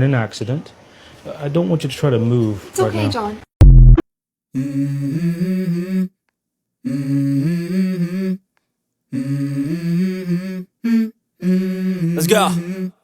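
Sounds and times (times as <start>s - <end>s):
person humming a tune: 4.6s - 6.2s, 6.8s - 8.4s, 9.1s - 13.0s.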